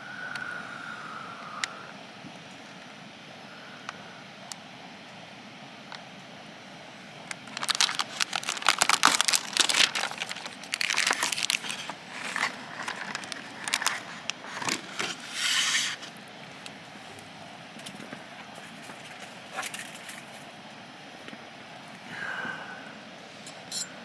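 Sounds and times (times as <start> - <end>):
crinkling and rustling: 7.3 - 16.2.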